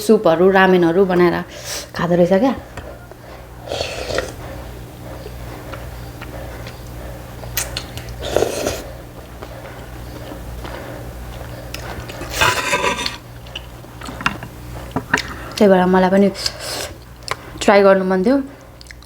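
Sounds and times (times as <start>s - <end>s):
steady low hum: 0.0s - 18.8s
eating sounds: 2.9s - 14.1s.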